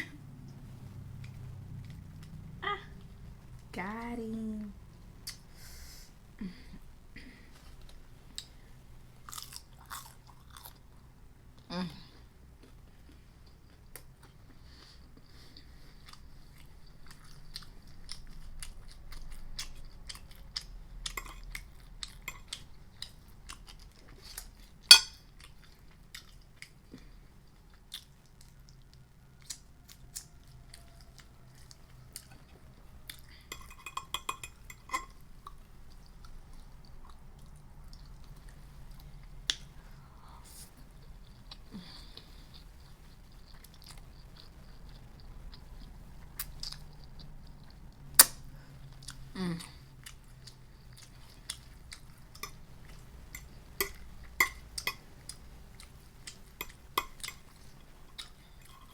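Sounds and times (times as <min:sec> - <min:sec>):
chewing and biting food: 0:09.2 - 0:10.8, 0:12.6 - 0:39.7, 0:40.8 - 0:58.9.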